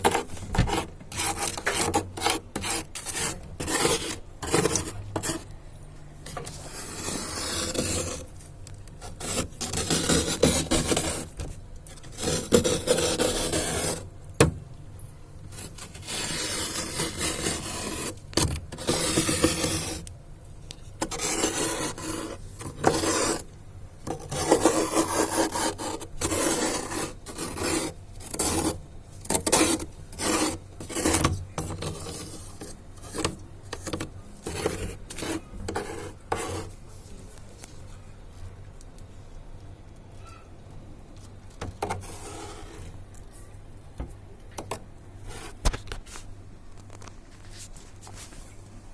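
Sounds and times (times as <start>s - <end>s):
ice scraping: 0.0s - 5.5s, 6.5s - 8.3s, 9.0s - 11.4s, 12.0s - 14.1s, 15.6s - 20.0s, 21.0s - 23.5s, 24.1s - 33.4s, 34.0s - 36.7s, 41.9s - 42.9s.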